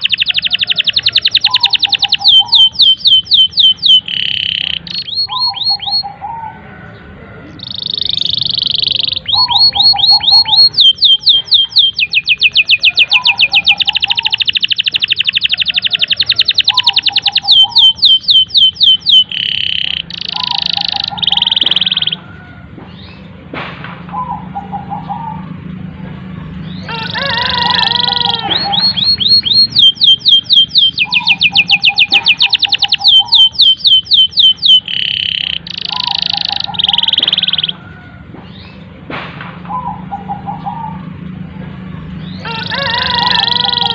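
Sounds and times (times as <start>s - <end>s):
canary singing trills: 0.0s - 23.4s, 24.1s - 39.0s, 39.7s - 43.9s.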